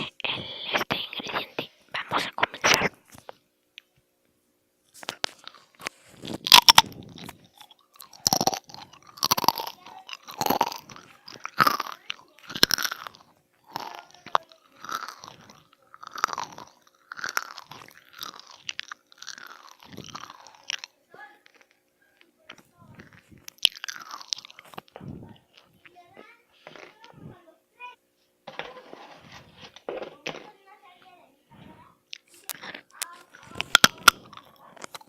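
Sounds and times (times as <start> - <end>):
crunchy chewing: 4.9 - 27.3, 32.1 - 35.0
person biting crunchy food: 5.0 - 20.9, 22.9 - 25.7, 32.1 - 35.0.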